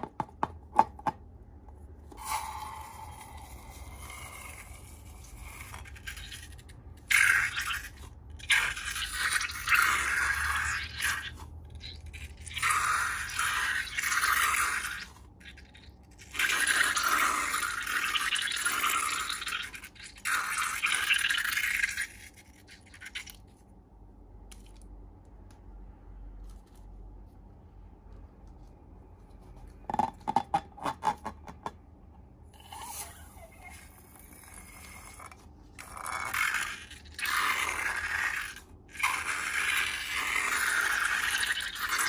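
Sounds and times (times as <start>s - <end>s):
slime being stirred and squished: 1.6s - 25.5s, 33.9s - 42.0s.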